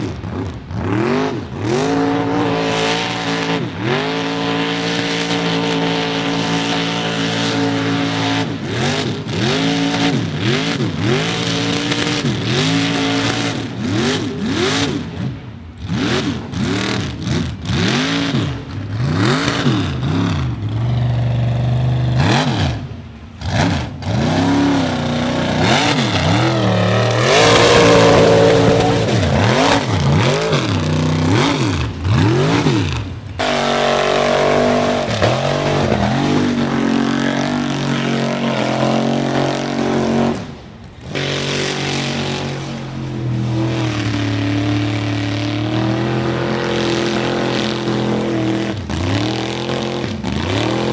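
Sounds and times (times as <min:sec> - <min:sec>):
truck engine revving: 0:00.0 - 0:50.9
rush of noise: 0:22.0 - 0:40.7.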